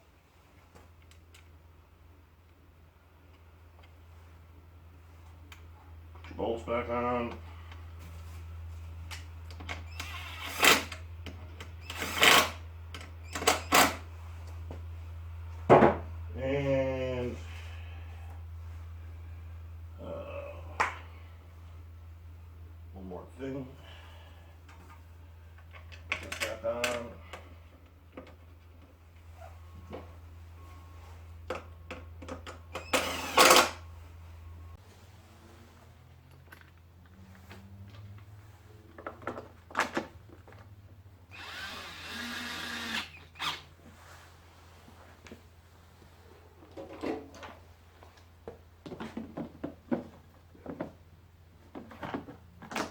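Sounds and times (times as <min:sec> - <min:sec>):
steady low hum: 0:00.0 - 0:52.7
hand tool bursts: 0:09.6 - 0:11.0, 0:11.8 - 0:12.6, 0:13.2 - 0:14.0, 0:32.6 - 0:33.8, 0:41.3 - 0:43.7.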